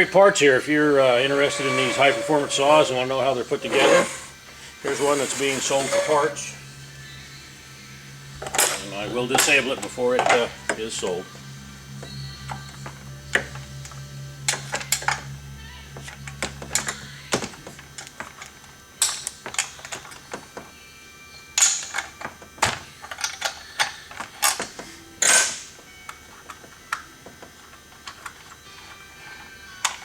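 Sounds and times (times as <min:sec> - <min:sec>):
low hum: 0:00.5 - 0:19.0.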